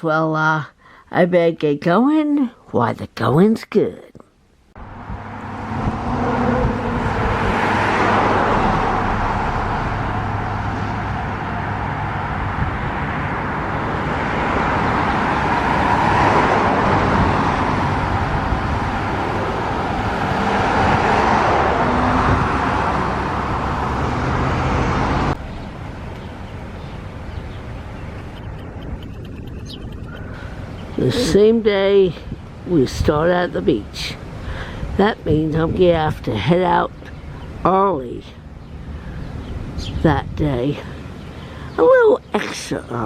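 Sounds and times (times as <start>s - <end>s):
road noise: 4.3s - 43.0s
car engine hum: 4.6s - 31.7s.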